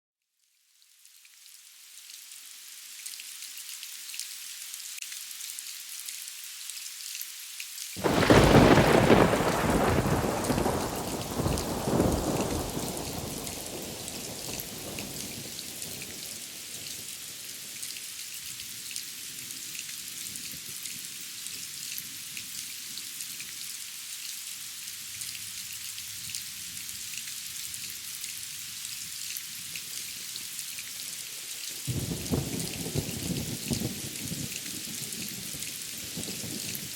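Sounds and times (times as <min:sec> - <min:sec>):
steady rain: 0:00.7 - 0:36.9
thunder clap and rumble: 0:08.0 - 0:15.6.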